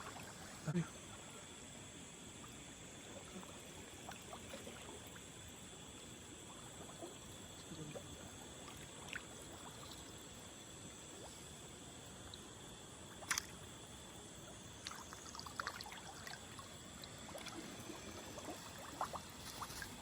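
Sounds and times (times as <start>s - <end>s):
faint trickling water: 0.0s - 20.0s
steady high hum: 0.0s - 20.0s
light splashes: 2.4s - 5.4s, 6.0s - 10.4s, 13.1s - 20.0s.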